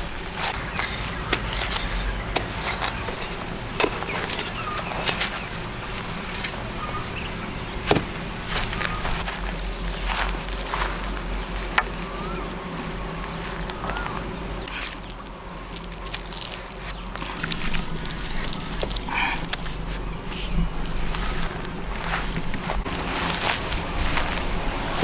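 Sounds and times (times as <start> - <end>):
handling clicks and rustles: 0.0 - 9.7
insect buzzing: 0.0 - 10.3.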